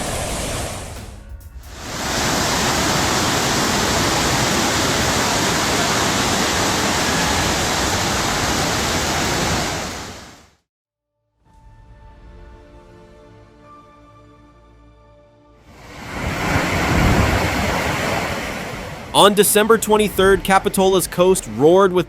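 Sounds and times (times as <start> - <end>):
water rushing: 0.0 - 10.6, 15.7 - 22.0.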